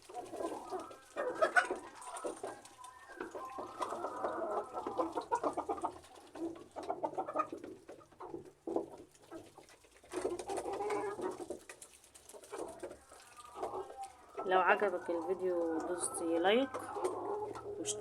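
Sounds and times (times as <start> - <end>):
flock of birds calling: 0.0 - 5.9, 12.4 - 18.0.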